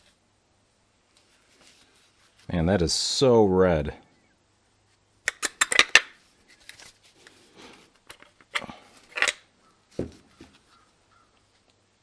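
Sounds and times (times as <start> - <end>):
small metal parts clicking: 5.3 - 6.1, 8.1 - 9.4.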